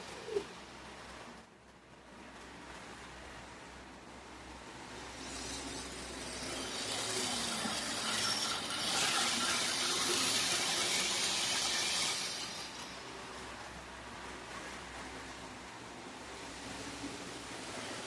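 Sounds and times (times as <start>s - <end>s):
train wheels clattering on track: 0.0s - 18.0s
model train electric motor: 4.6s - 15.3s.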